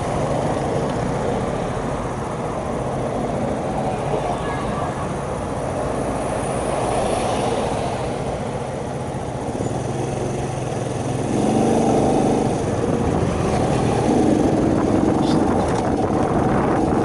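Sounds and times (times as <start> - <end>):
wind noise on microphone: 7.4 - 17.0
small motorcycle engine running: 9.4 - 17.0.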